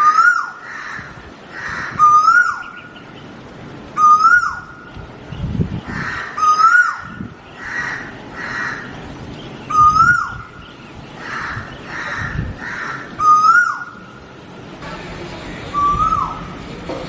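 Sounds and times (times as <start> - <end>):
bird whistled call: 2.0 - 3.0, 4.0 - 4.8, 9.7 - 10.6, 13.2 - 14.0, 15.7 - 16.5.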